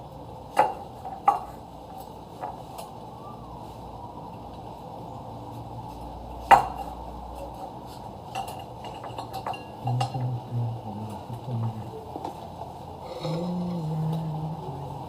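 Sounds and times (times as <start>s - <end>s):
utensils clinking against dishes: 6.6s - 10.4s.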